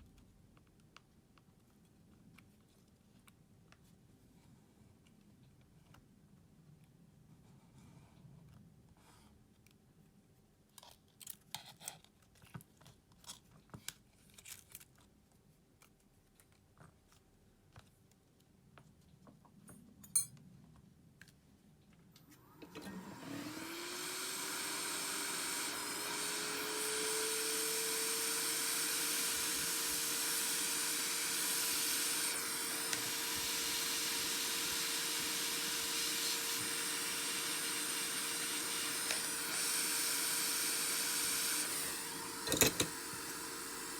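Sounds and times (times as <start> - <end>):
electric blower whine and hiss: 22.3 - 43.9
small tools clicking and tapping: 42.4 - 43.0.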